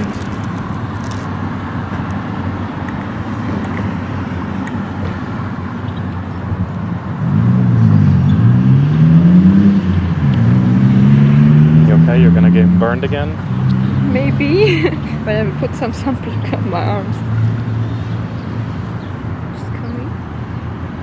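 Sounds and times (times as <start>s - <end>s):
road traffic: 0.0s - 21.0s
car accelerating past: 7.1s - 14.5s.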